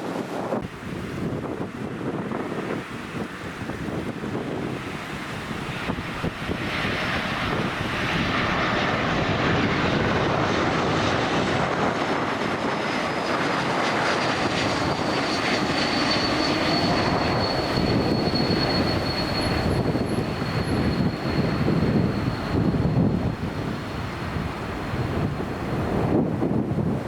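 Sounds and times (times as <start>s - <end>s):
jet engines roaring: 0.0s - 27.0s
high whine falling in pitch: 15.1s - 23.3s.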